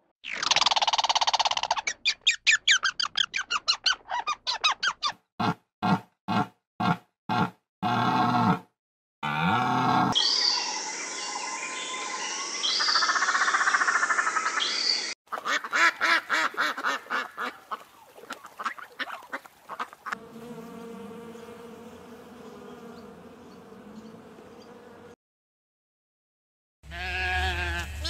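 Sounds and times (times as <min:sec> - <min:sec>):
mallard quacking: 0:15.3 - 0:17.9
honeybees buzzing: 0:20.2 - 0:25.2.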